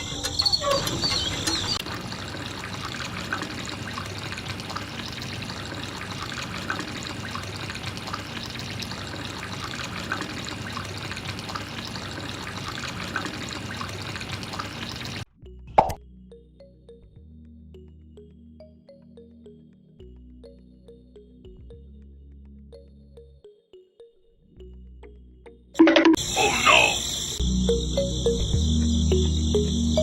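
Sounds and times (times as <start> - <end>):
water trickling and splashing: 0.0 - 15.3
water drips: 0.0 - 16.0
high insect chirping: 26.2 - 30.0.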